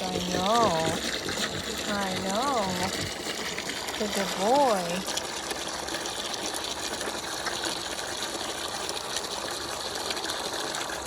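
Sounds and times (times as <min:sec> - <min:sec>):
water pouring into pool: 0:00.0 - 0:11.0.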